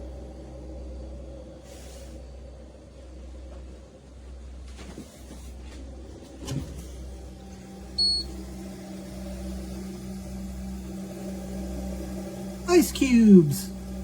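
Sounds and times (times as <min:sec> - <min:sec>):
steady low hum: 0:00.0 - 0:14.0
high electronic appliance beep: 0:08.0 - 0:08.4.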